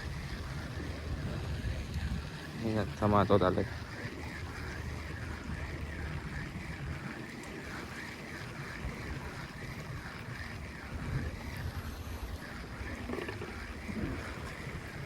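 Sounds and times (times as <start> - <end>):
boat engine rumble: 0.0 - 15.0
water: 0.0 - 15.0
wind: 0.0 - 15.0.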